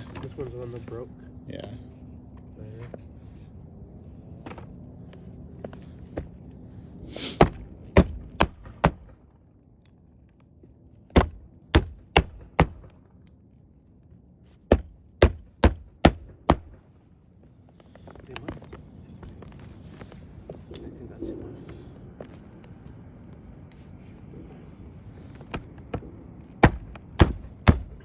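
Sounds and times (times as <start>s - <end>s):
hammer driving nails into wood: 11.1s - 13.0s, 14.7s - 16.8s, 26.6s - 28.0s.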